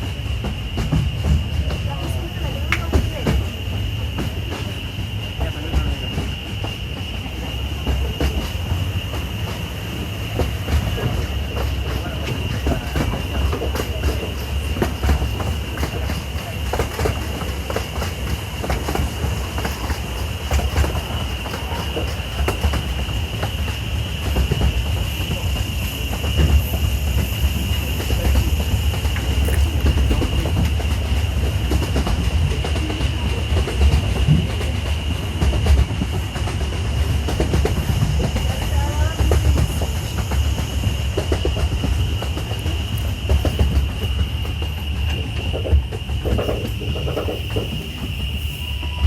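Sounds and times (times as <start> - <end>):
train clanks and knocks: 0.0 - 49.0
train rumbling along track: 0.0 - 49.0.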